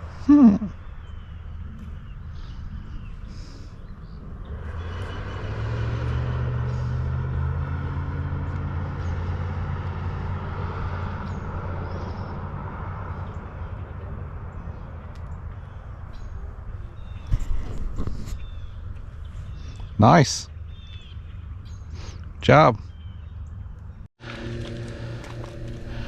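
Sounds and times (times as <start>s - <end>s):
motor engine passing by: 4.1s - 15.8s, 24.2s - 26.0s.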